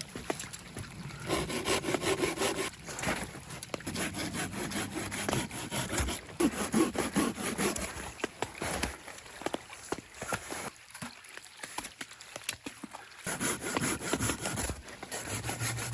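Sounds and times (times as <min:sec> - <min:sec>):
hand saw cutting wood: 0:01.3 - 0:02.7, 0:03.8 - 0:08.0, 0:13.3 - 0:15.9.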